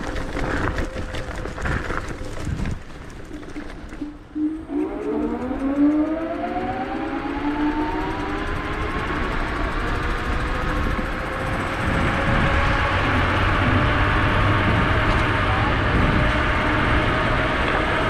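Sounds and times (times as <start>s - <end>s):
wind rush on microphone: 0.0s - 18.0s
electric motor whining: 4.3s - 18.0s.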